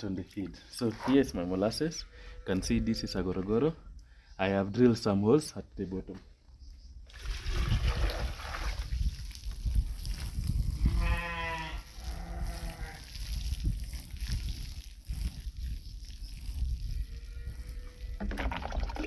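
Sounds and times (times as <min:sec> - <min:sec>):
sheep bleating: 0:10.9 - 0:13.0.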